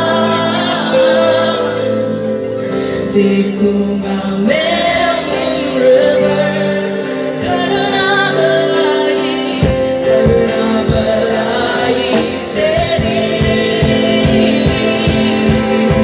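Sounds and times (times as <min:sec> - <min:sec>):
singing over instrumental backing: 0:00.0 - 0:16.0
steady drum beat: 0:07.0 - 0:16.0.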